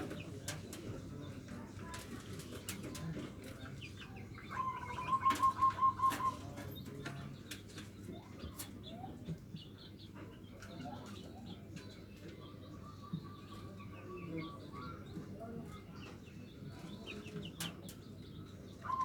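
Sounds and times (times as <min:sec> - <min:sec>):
dove cooing: 0:04.5 - 0:06.5.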